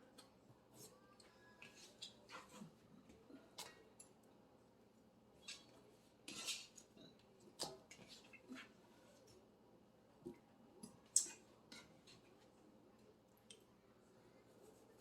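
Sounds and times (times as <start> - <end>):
knife scrape: 6.3 - 6.7.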